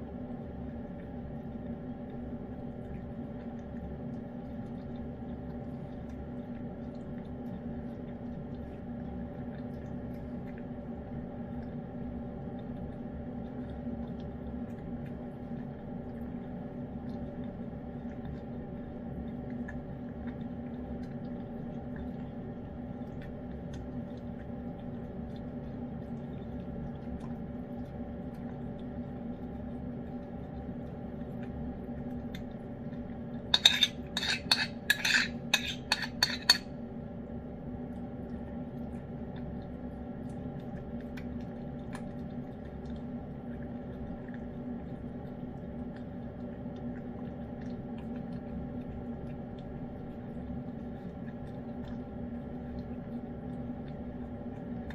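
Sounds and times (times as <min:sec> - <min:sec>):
low hum: 0:00.0 - 0:54.9
dishware and utensils clattering: 0:33.6 - 0:36.6.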